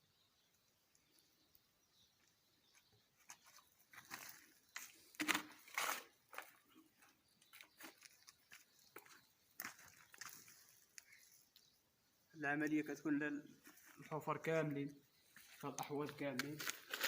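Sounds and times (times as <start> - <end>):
soil crunching and scraping: 2.6 - 11.8, 13.5 - 17.0.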